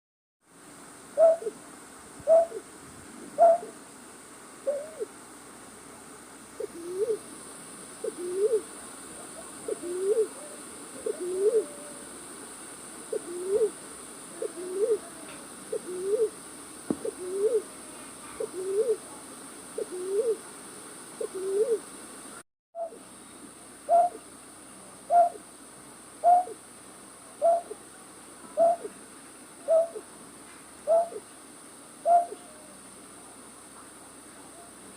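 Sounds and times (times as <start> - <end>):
low hooting bird call: 1.2 - 1.6, 2.3 - 2.6, 3.4 - 3.8, 4.7 - 5.1, 8.0 - 8.6, 9.6 - 12.1, 13.1 - 13.8, 23.9 - 24.2, 25.1 - 25.4, 26.2 - 26.6, 27.4 - 27.8, 28.6 - 28.9, 29.6 - 30.0, 30.8 - 31.2, 32.0 - 32.8.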